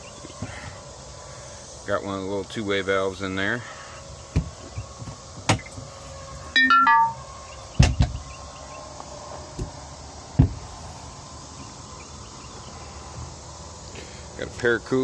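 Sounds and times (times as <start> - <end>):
insects chirring: 0.0 - 15.0
squeak dropping in pitch: 6.6 - 7.2.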